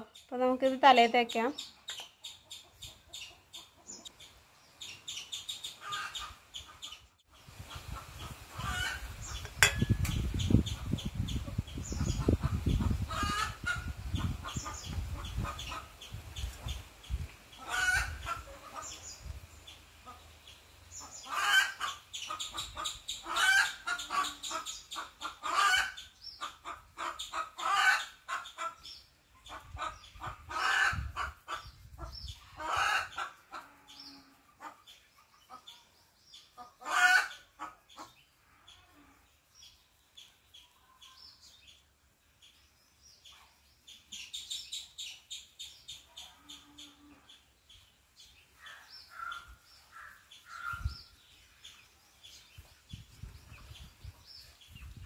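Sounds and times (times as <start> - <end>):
birds harsh calls: 0.9 - 55.0
high bird chirping: 8.6 - 13.4.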